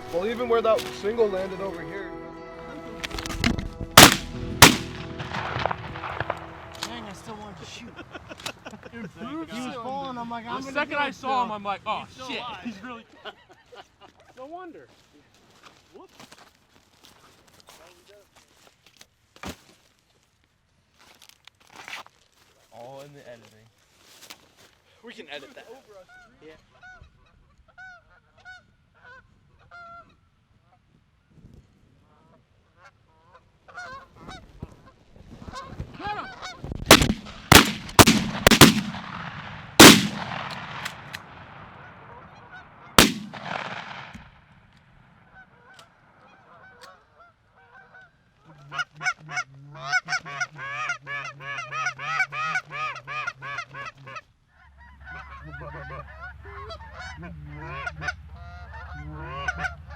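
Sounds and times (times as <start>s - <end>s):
shotgun shots: 3.1s - 7.0s, 36.9s - 42.4s, 43.0s - 44.4s
geese honking: 45.4s - 59.9s.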